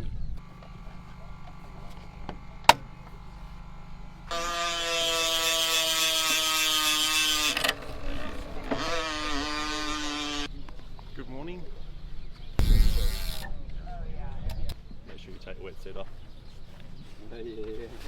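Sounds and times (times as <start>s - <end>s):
bicycle freewheel ratchet buzzing: 0.4s - 10.5s, 12.6s - 13.6s.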